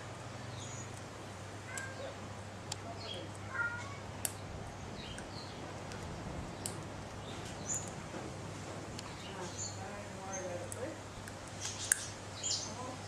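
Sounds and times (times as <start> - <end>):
bird chirping: 0.4 - 1.0, 2.8 - 8.0, 9.0 - 13.0.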